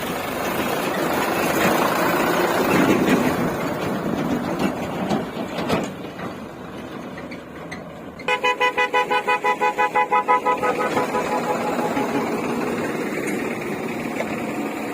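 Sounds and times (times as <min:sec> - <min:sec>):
engine running: 0:00.0 - 0:14.9
vehicle horn pulsing rapidly: 0:08.3 - 0:12.7.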